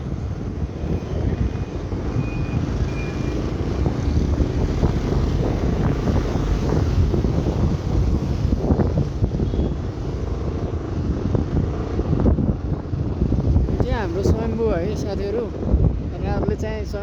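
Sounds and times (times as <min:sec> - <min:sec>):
motorcycle and road rumble: 0:00.0 - 0:17.0
wind buffeting microphone: 0:00.0 - 0:17.0.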